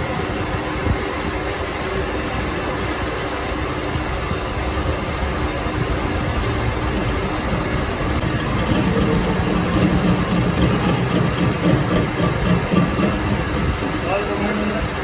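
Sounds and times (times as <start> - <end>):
engine running: 5.1 - 15.0.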